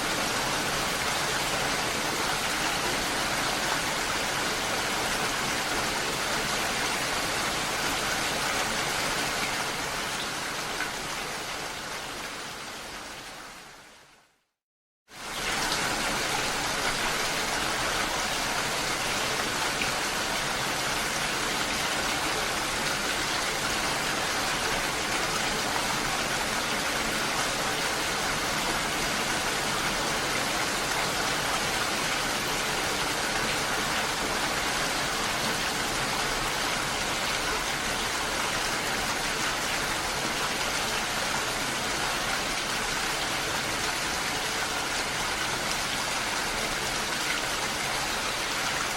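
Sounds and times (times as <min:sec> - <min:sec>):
falling water: 0:15.1 - 0:48.9.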